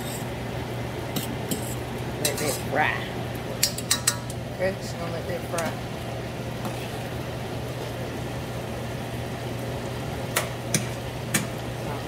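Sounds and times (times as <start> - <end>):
food sizzling in pot: 0.0 - 4.5
constant low hum: 0.0 - 12.0.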